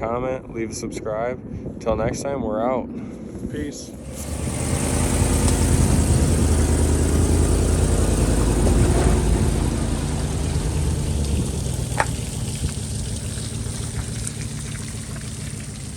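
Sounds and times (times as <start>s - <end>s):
boat motor running: 3.9s - 15.9s.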